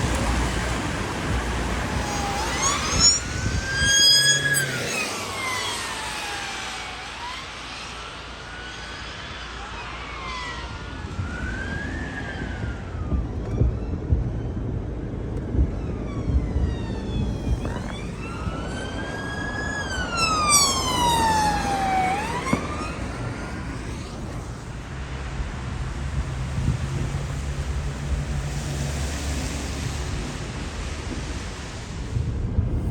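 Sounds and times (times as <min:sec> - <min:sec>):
emergency siren wailing: 0:00.0 - 0:31.4
traffic rumble: 0:00.0 - 0:32.9.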